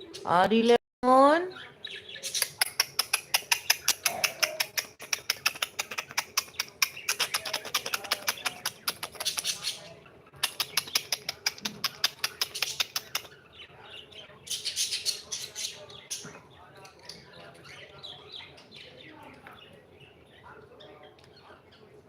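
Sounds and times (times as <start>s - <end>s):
cockatiel clicking: 2.3s - 9.7s, 10.4s - 13.4s.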